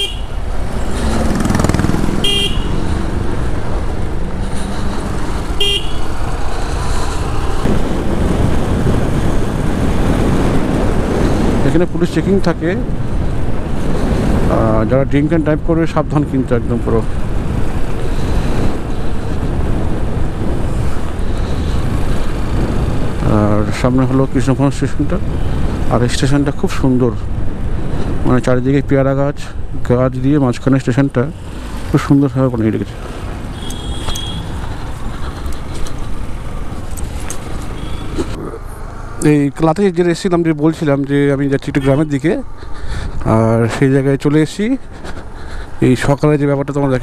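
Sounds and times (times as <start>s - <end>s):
motorcycle engine: 0.0s - 11.5s, 31.3s - 39.5s
road noise: 0.0s - 47.0s
wind buffeting microphone: 6.3s - 11.7s.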